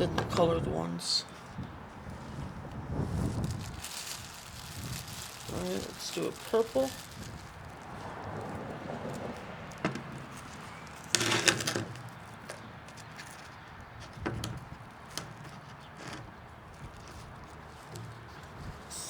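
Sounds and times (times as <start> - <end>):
handling knocks and clicks: 9.1 - 19.0.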